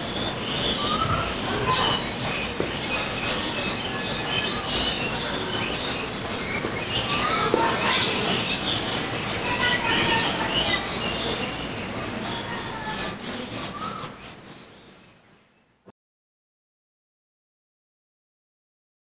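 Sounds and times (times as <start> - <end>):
pencil shading on paper: 12.8 - 14.2.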